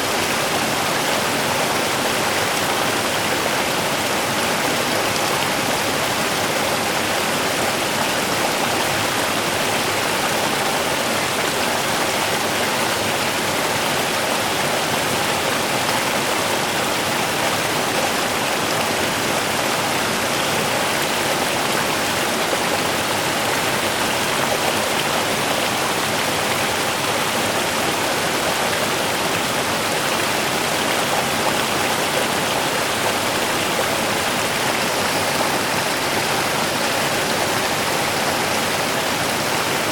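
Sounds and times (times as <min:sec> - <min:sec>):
river splashing over stones: 0:15.2 - 0:39.9.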